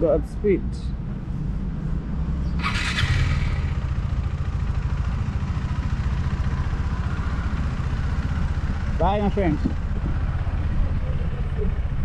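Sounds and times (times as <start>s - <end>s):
motorcycle engine idling: 2.4s - 12.0s.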